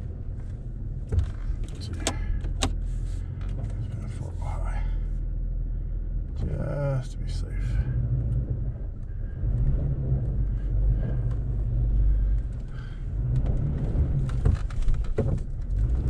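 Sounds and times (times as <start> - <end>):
vehicle engine low rumble: 0.0 - 16.0
truck knocking and clattering: 12.3 - 16.0.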